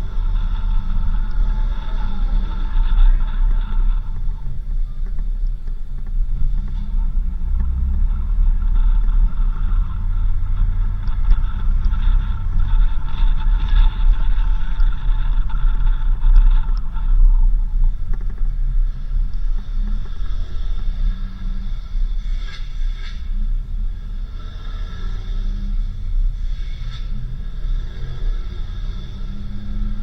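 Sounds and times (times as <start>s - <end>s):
vehicle driving on dirt road: 0.0s - 30.0s.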